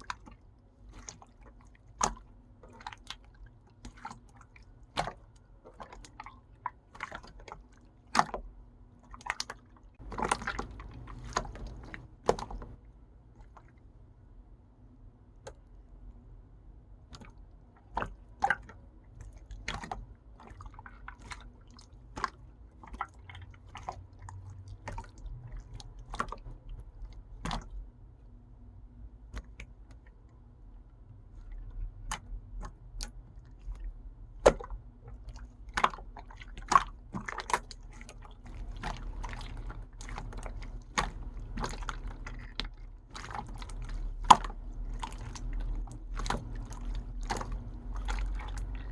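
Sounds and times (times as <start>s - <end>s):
hands kneading slime: 0.0s - 14.4s, 15.2s - 48.9s.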